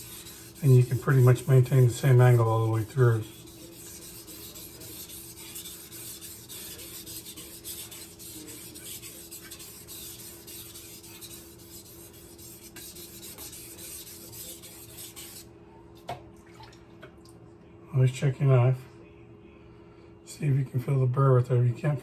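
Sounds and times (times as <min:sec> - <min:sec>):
knife rubbing on whetstone: 0:00.0 - 0:15.5.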